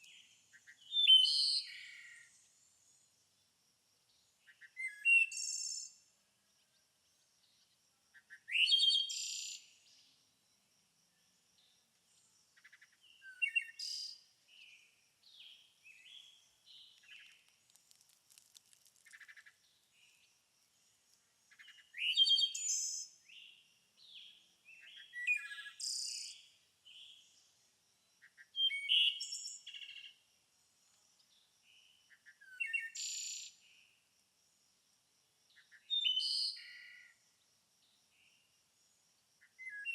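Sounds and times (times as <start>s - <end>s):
loud bird song phrase: 0.0s - 3.5s, 4.1s - 10.2s, 11.6s - 17.3s, 21.5s - 27.6s, 28.2s - 30.2s, 31.3s - 33.9s, 35.5s - 37.2s, 39.4s - 39.9s
faint bird chirps: 0.0s - 34.0s, 35.5s - 39.9s.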